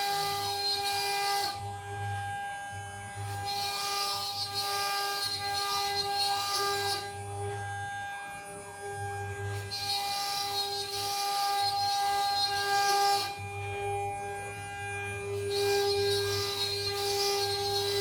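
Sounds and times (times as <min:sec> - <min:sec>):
router spindle whining: 0:00.0 - 0:18.0.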